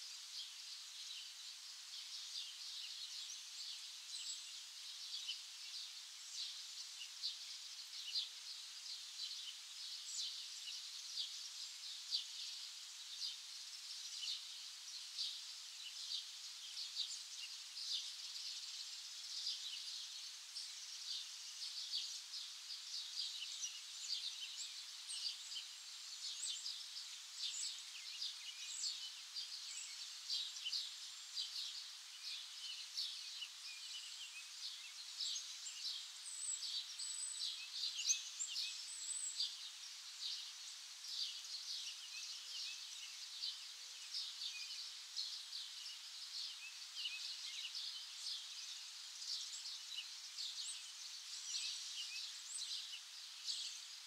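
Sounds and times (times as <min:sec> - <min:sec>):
flock of small birds chirping: 0:00.0 - 0:54.0.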